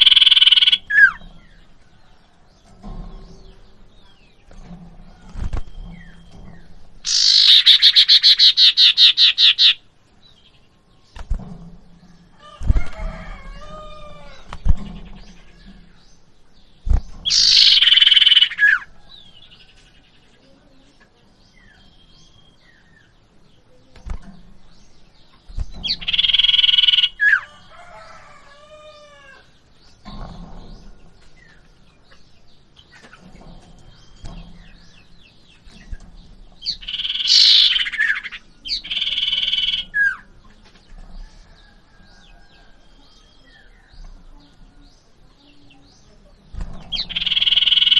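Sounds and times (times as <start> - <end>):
bird harsh buzzy calls: 0.0 - 1.3, 7.0 - 9.9, 16.9 - 18.9, 25.5 - 27.5, 36.6 - 40.3, 46.8 - 47.9.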